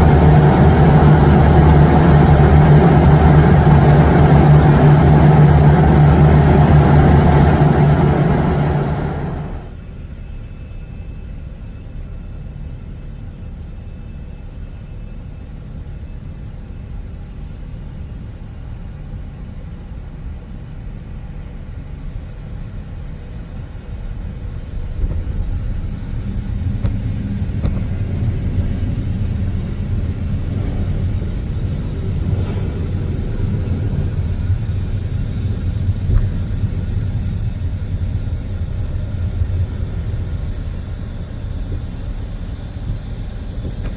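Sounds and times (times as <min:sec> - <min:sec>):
jet engines rumbling: 0:00.0 - 0:10.1, 0:21.2 - 0:43.9.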